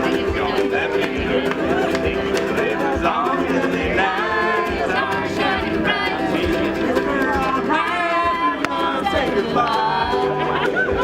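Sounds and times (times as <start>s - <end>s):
steady rhythmic beat: 0.0s - 11.0s
strummed guitar: 0.0s - 11.0s
voices singing: 0.0s - 11.0s.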